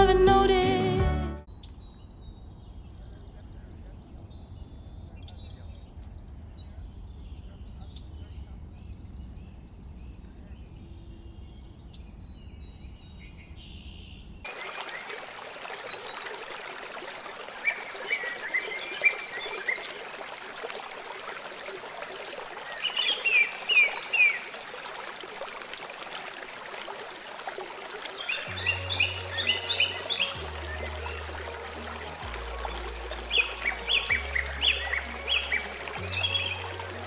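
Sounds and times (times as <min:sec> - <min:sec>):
songbirds chirping: 0:28.0 - 0:37.0.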